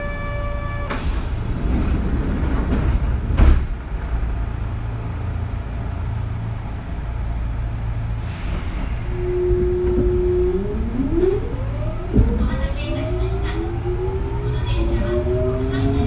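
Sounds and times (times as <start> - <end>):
train equipment humming: 0.0 - 16.0
loud thump: 2.7 - 3.8, 12.1 - 12.6.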